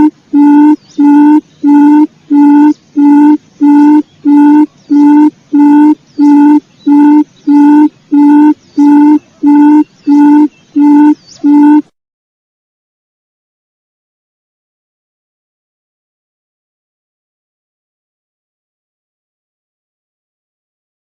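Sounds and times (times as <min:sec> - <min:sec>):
quail call hooting: 0:00.0 - 0:11.9.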